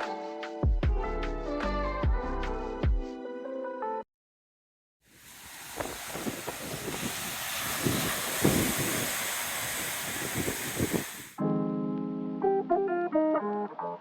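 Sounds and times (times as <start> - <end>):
wind buffeting microphone: 5.4 - 11.3.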